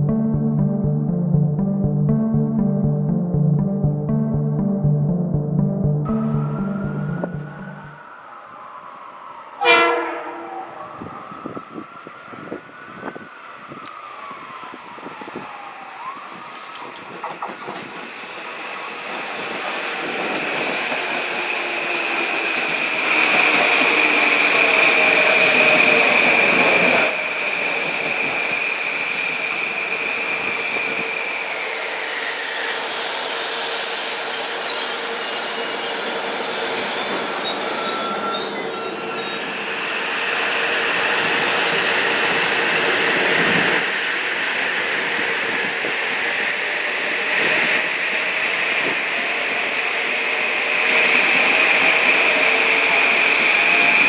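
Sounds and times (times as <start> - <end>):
train wheel noise on rails: 6.2 - 54.0
high wheel squeal: 22.5 - 39.8.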